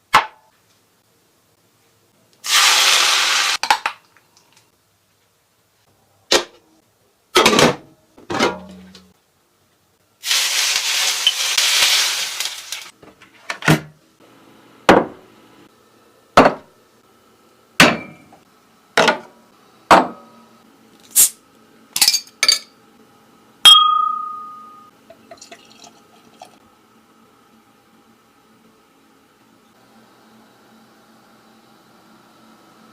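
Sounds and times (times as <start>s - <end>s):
dishes and utensils clinking: 22.0s - 22.8s.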